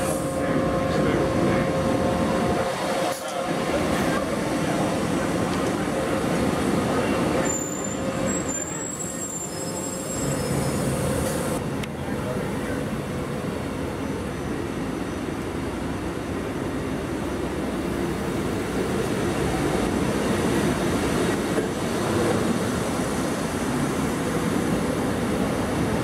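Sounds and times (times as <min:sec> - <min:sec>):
train rumbling: 0:00.0 - 0:26.0
brakes squealing: 0:06.9 - 0:11.6.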